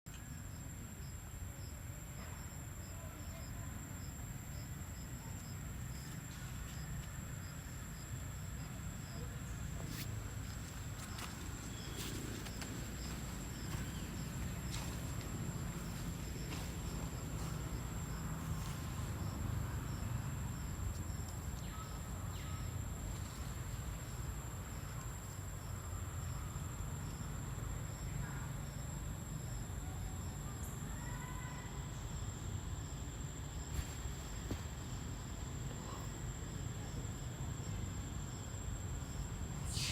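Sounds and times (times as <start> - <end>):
cricket chirps: 0.1 - 39.9
high-pitched insect drone: 39.6 - 39.9.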